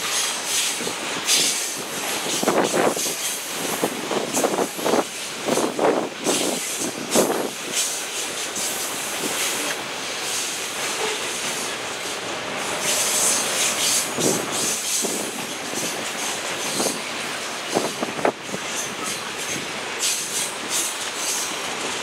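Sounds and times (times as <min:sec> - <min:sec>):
loud rail clacks: 0:00.0 - 0:22.0
train wheels on rail: 0:00.0 - 0:22.0
high wheel squeal: 0:11.0 - 0:17.1.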